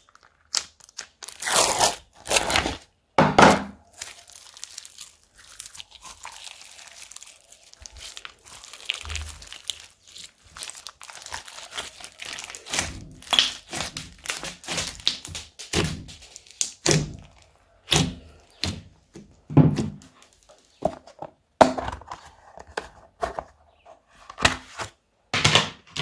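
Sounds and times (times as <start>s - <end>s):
slime squished by hand: 3.8s - 18.9s.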